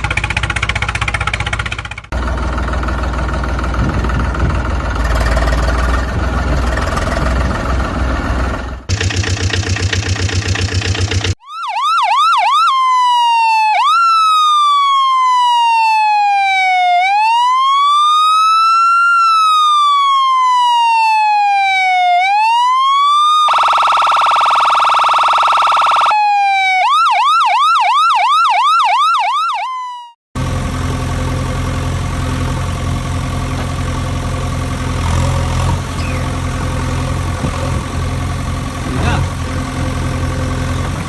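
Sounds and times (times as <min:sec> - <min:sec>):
engine idling: 0:00.0 - 0:11.4, 0:30.4 - 0:41.0
electronic siren wailing: 0:11.4 - 0:30.2.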